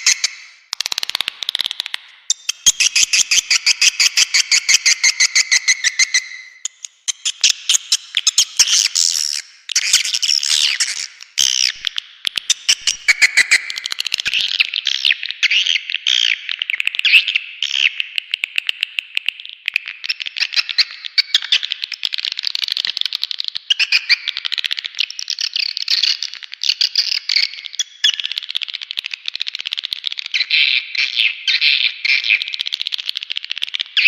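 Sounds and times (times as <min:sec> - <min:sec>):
sharp clicks: 0:00.7 - 0:02.8.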